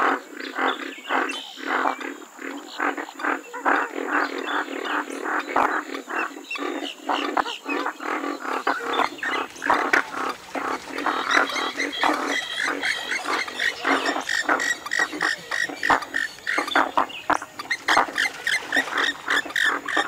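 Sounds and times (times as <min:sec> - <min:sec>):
bird giving harsh calls: 0:08.4 - 0:20.0.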